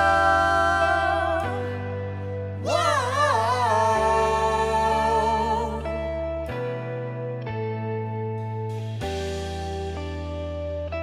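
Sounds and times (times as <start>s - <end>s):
lead line with wide vibrato: 0.0s - 7.4s
gospel band sustained chords: 0.0s - 11.0s.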